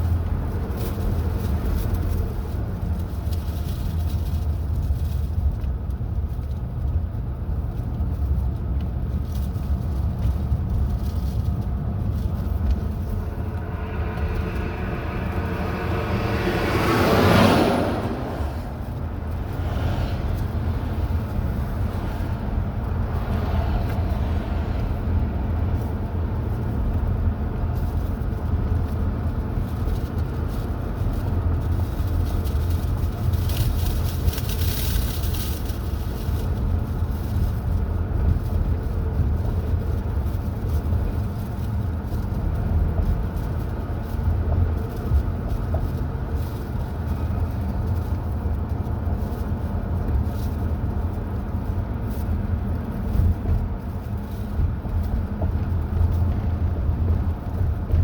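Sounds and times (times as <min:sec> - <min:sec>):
car driving on road: 0:00.0 - 0:58.0
vehicle passing by: 0:11.0 - 0:27.2.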